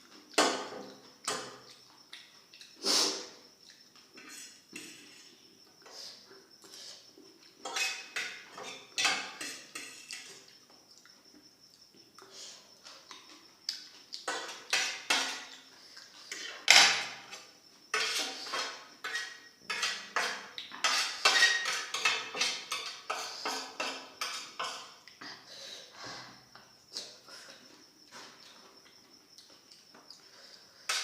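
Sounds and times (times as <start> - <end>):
cutlery scraping on a plate: 4.2 - 5.3, 7.6 - 10.5, 14.2 - 15.6, 16.2 - 25.0.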